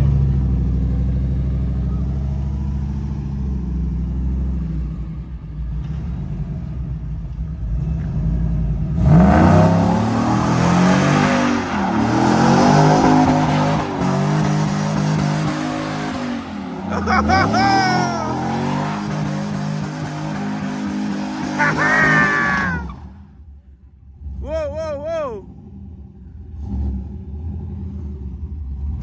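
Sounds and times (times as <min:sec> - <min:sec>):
car engine revving: 0:07.6 - 0:23.2.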